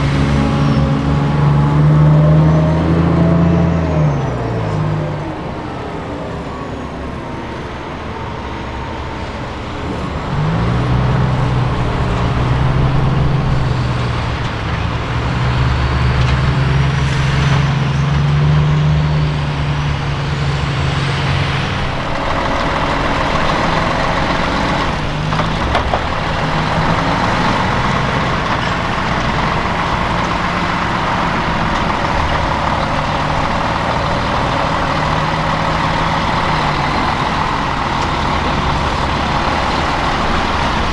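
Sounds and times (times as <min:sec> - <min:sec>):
truck diesel engine running: 0:00.0 - 0:40.9.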